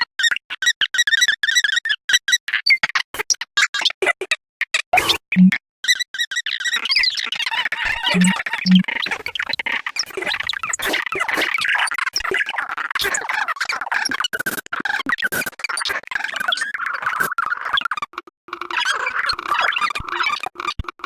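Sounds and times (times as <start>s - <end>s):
recorded bird chirps and squawks: 6.6s - 14.2s.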